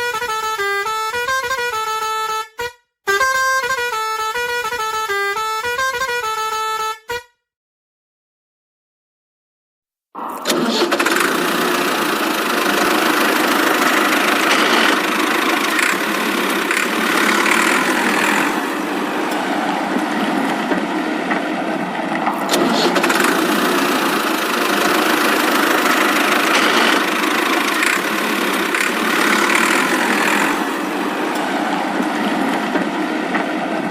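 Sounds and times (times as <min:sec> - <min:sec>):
engine running: 0:10.2 - 0:33.9.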